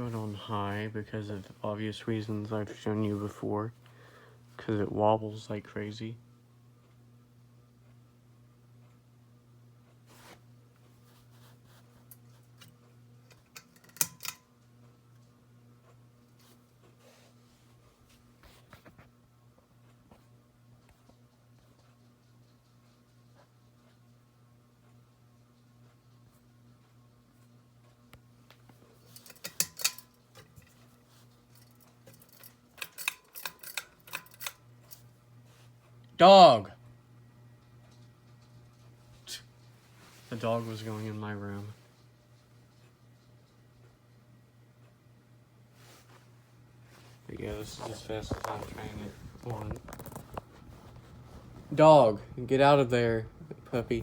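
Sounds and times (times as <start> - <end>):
ceiling fan motor humming: 0.0 - 54.0
sharp clicks and clinks: 13.3 - 14.4, 29.1 - 30.8, 31.6 - 35.0.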